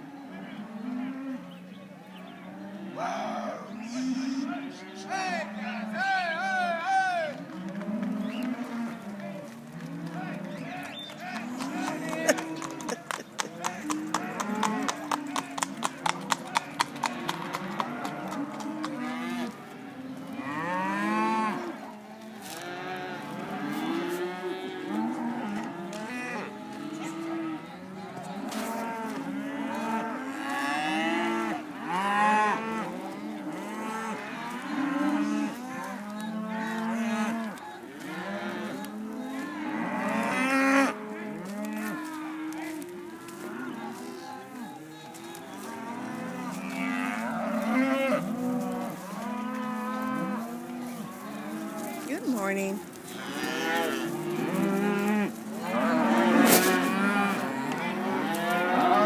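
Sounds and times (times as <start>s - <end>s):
cattle mooing: 11.3s - 13.0s, 13.6s - 21.8s, 22.4s - 59.0s.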